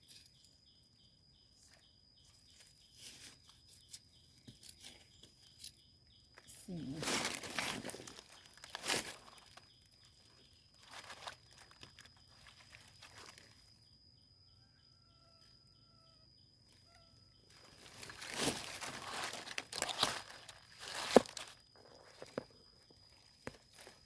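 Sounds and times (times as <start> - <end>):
faint chirps: 0.0 - 24.0
leaf litter crunching: 6.4 - 13.8, 17.5 - 24.0.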